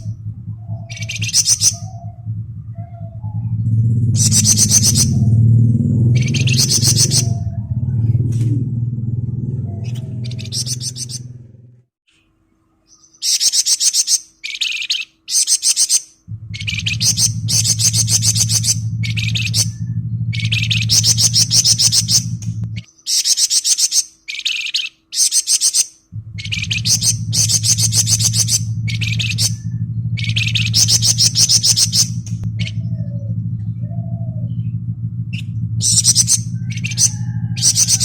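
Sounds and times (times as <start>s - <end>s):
songbird rattling song: 0.0s - 11.5s, 12.9s - 38.0s
steady low hum: 0.0s - 38.0s.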